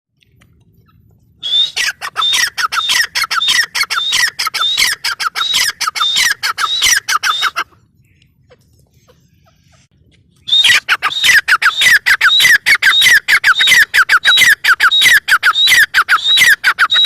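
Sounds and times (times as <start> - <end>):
francolin calling: 1.4 - 8.3, 10.4 - 17.0.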